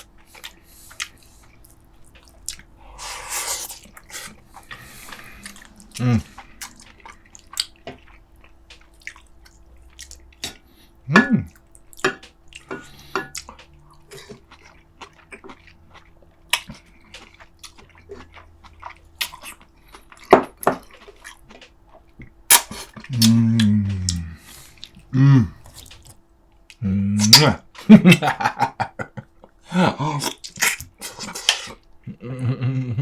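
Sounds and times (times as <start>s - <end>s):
lip smacks and chewing: 0.0s - 2.8s, 3.6s - 10.9s, 11.5s - 26.8s
person humming mm: 5.2s - 6.6s, 23.1s - 24.4s, 25.1s - 25.7s, 32.1s - 33.0s.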